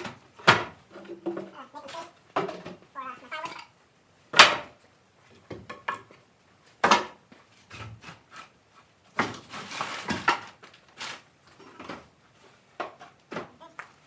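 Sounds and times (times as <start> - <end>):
firewood knocking and clattering: 0.0 - 2.9, 4.3 - 6.2, 6.8 - 7.4, 9.1 - 10.8.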